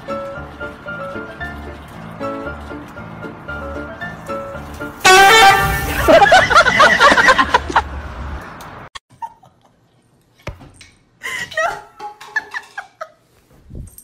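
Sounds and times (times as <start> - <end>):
loud laughing: 5.8 - 7.9.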